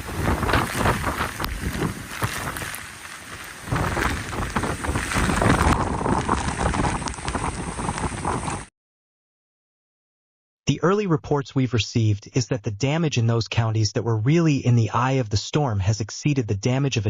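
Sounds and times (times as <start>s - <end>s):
rain: 0.0s - 8.7s
wind buffeting microphone: 0.0s - 8.7s.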